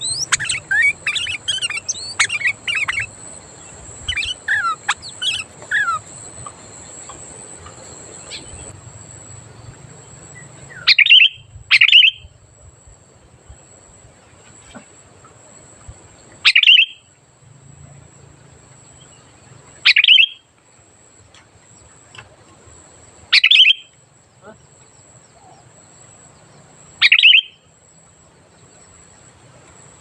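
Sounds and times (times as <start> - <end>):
bulbul singing: 0.0 - 12.4, 16.2 - 17.1, 18.9 - 20.5, 23.3 - 25.7, 27.0 - 27.7.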